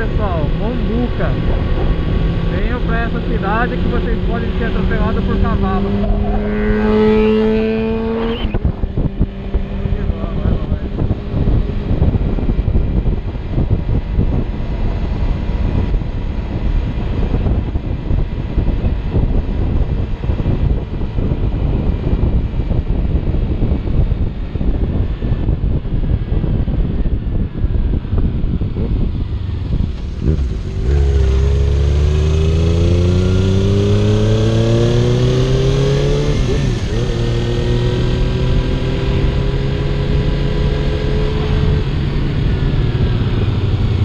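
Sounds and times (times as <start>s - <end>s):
motorcycle engine running: 0.0s - 44.0s
wind buffeting helmet microphone: 0.0s - 44.0s.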